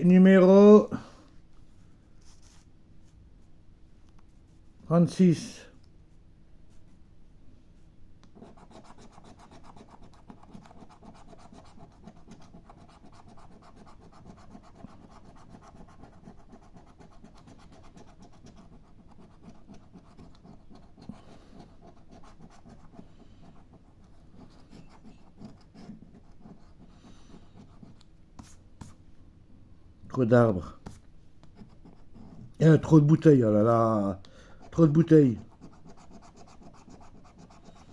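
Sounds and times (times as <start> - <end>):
coin scratching a scratch card: 8.4 - 23.8, 34.7 - 37.9.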